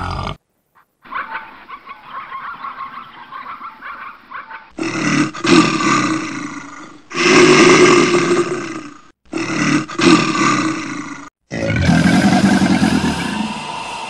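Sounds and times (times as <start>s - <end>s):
large animal roaring growls: 4.8s - 14.0s.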